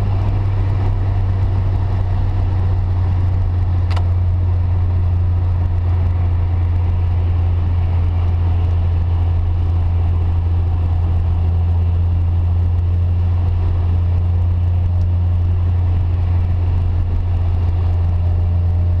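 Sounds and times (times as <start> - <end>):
car engine drone: 0.0 - 19.0
road and tyre noise: 0.0 - 19.0.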